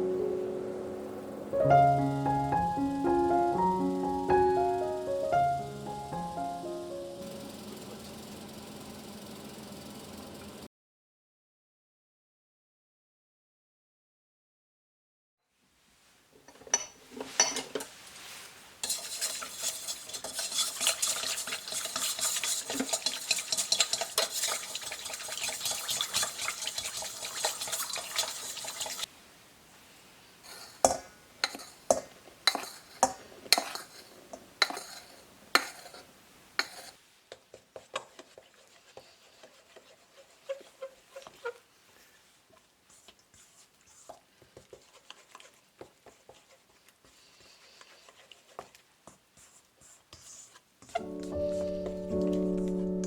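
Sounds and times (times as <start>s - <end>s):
utensil stirring in a bowl: 16.7s - 29.1s, 30.4s - 52.8s.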